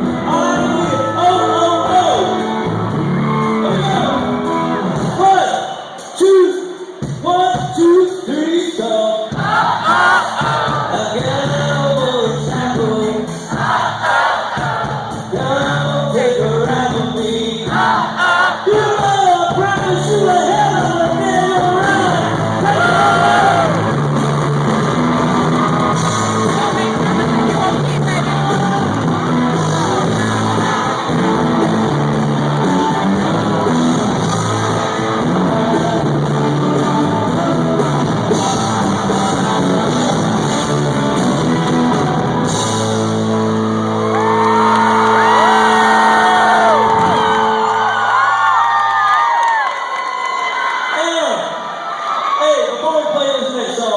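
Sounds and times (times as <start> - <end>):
man singing: 0.0 - 2.5, 10.6 - 13.4, 15.3 - 23.9, 26.4 - 29.2, 34.8 - 40.0
live country rock band: 0.0 - 9.3, 14.7 - 48.9.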